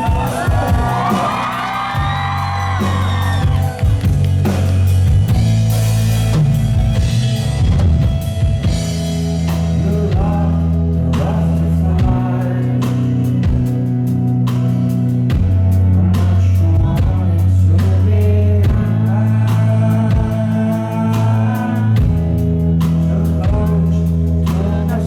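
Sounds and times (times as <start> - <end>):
person singing: 0.0 - 3.8
live rock band playing: 0.0 - 25.0.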